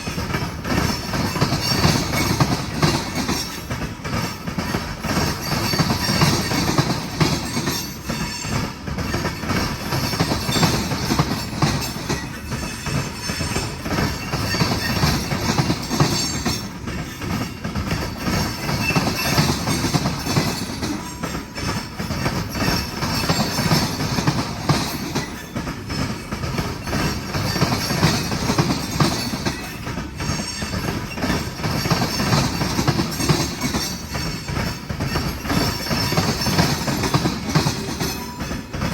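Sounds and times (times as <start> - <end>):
train wheels clattering over rail joints: 0.0 - 38.9
high wheel squeal: 7.4 - 10.9, 18.4 - 38.6.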